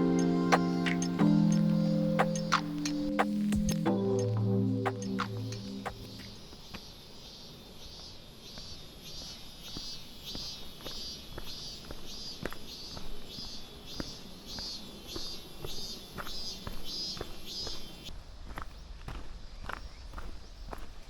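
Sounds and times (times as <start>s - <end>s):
insect chirping: 0.0s - 18.1s
soft footsteps on trail: 4.9s - 21.0s.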